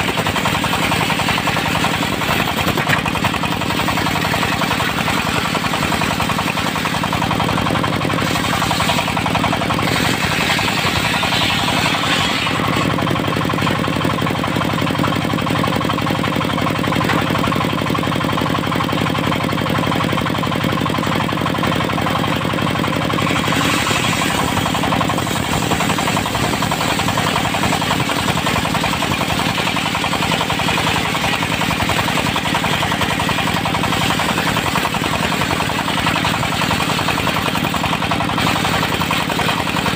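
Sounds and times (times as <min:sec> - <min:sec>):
saw blade cutting wood: 0:00.0 - 0:14.2, 0:23.0 - 0:39.9
diesel engine knocking: 0:00.0 - 0:39.9.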